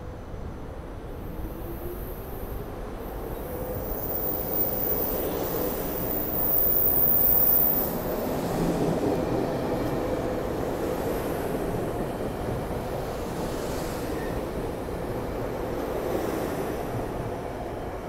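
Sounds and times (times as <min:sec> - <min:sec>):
faint high wheel squeal: 0:03.5 - 0:08.0.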